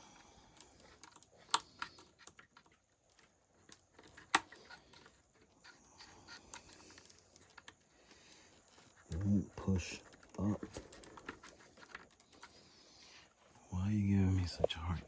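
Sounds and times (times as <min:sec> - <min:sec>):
hand tools clicking and tapping: 0:00.7 - 0:07.8.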